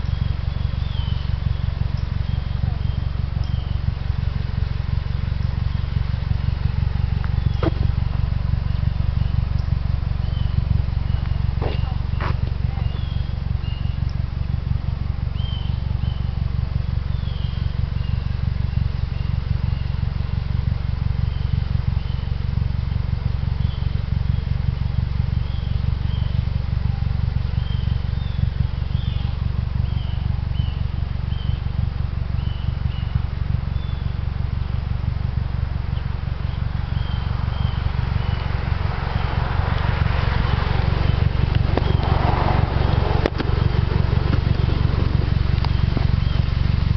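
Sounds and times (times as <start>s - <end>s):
high bird chirps: 0.0s - 3.9s, 7.3s - 14.2s, 15.3s - 16.4s, 17.1s - 20.0s, 32.4s - 34.2s, 36.4s - 38.6s, 40.4s - 46.9s
car engine idling: 0.0s - 46.9s.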